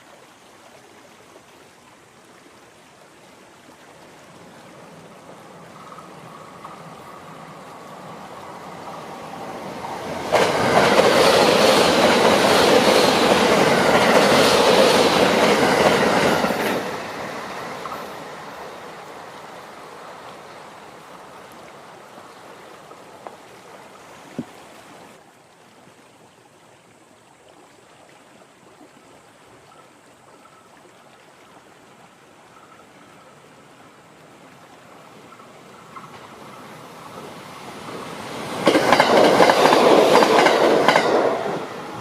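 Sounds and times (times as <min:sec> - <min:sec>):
train wheels clattering: 0:10.0 - 0:17.0, 0:37.9 - 0:41.7.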